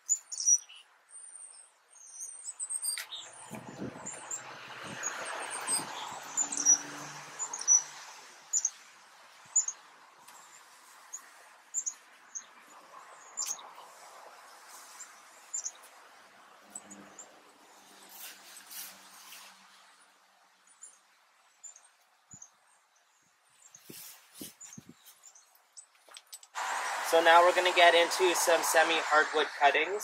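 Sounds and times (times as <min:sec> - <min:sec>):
small bird chirping: 0:00.0 - 0:08.8, 0:09.5 - 0:13.9, 0:14.7 - 0:16.0, 0:16.6 - 0:18.0, 0:20.7 - 0:26.6
foliage rustling: 0:23.6 - 0:27.6.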